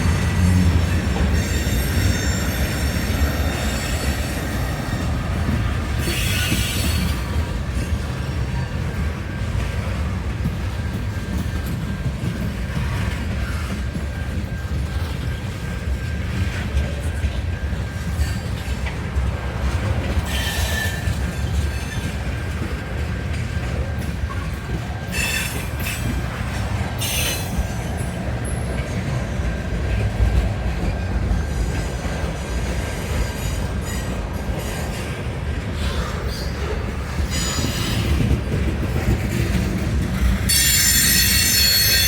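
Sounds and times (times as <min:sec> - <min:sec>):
high wheel squeal: 0:00.0 - 0:05.1, 0:06.0 - 0:07.4, 0:20.3 - 0:22.1, 0:25.1 - 0:26.4, 0:27.0 - 0:27.8, 0:37.2 - 0:38.3, 0:40.5 - 0:42.0
low rumble of railcars: 0:00.0 - 0:42.0
train wheels squealing on rails: 0:00.0 - 0:42.0.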